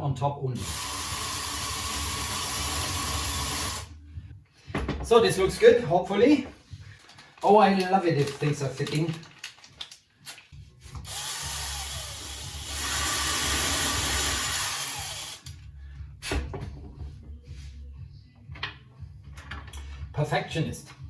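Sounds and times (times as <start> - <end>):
power drill running: 0.6 - 3.9, 11.0 - 15.5.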